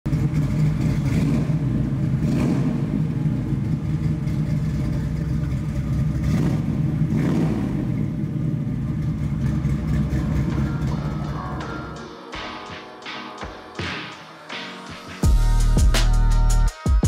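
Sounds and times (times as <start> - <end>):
engine throttle blips: 0.1 - 12.1
car engine idling: 0.1 - 12.5.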